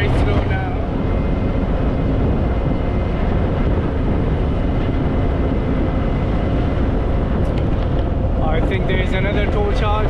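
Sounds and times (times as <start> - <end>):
wind rushing over microphone: 0.0 - 10.0.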